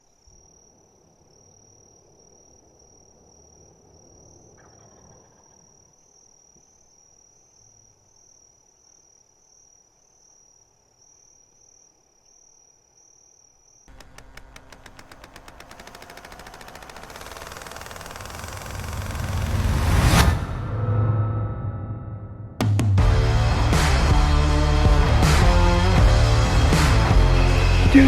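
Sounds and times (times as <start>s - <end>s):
loud rapid rattle: 13.9s - 20.5s.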